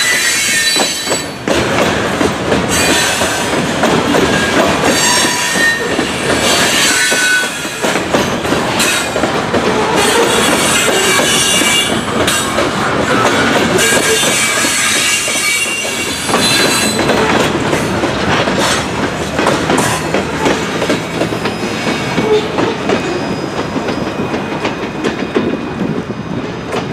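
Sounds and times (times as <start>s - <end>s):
train wheels clacking over rail joints: 0.0s - 26.9s
high wheel squeal: 4.9s - 7.8s, 13.1s - 17.4s, 21.5s - 24.5s.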